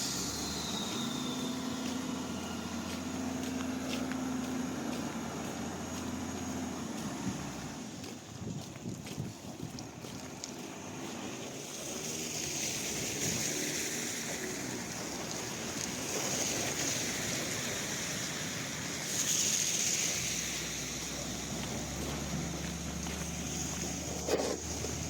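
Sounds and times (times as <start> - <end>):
rushing wind: 6.7 - 25.0.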